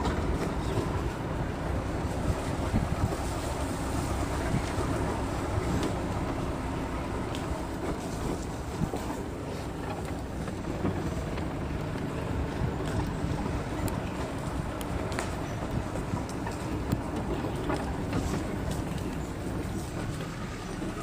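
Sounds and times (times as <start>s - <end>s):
vehicle engine and tyres rumbling: 0.0s - 21.0s
wind buffeting microphone: 0.0s - 21.0s
faint rattles and clicks: 7.2s - 21.0s.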